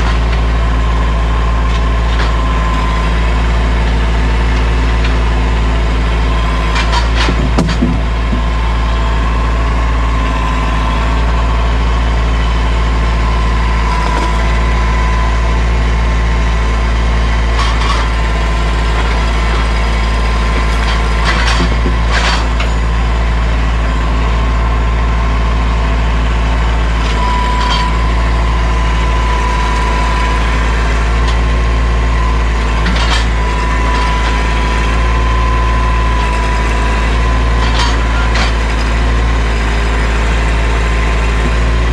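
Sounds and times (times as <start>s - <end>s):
tractor diesel engine running: 0.0s - 41.9s
sharp knocks: 7.2s - 8.5s.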